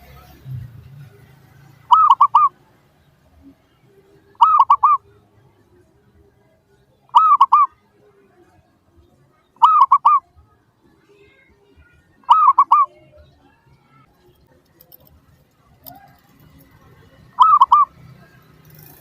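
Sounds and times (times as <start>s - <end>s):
dove cooing: 1.8s - 2.6s, 4.2s - 5.2s, 7.1s - 7.8s, 9.6s - 10.3s, 12.3s - 13.0s, 15.8s - 18.1s.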